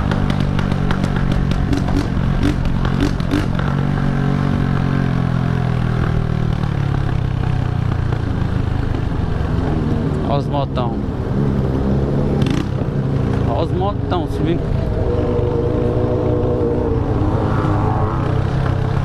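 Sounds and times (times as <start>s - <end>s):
exhaust cracks: 0.0s - 4.0s
motorcycle engine running loud: 0.0s - 19.0s.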